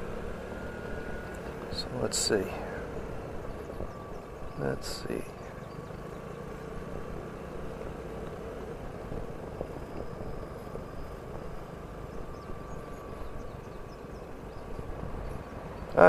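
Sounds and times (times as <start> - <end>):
scooter engine running: 0.0 - 16.0.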